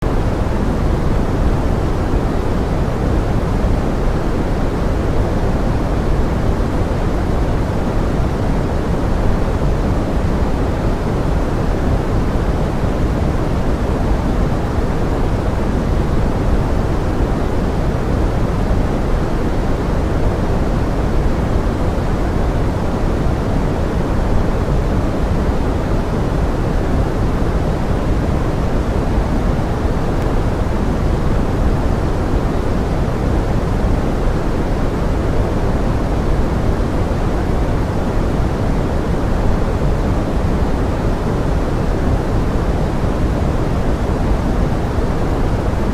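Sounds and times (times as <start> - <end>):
steady rain hiss: 0.0 - 45.9.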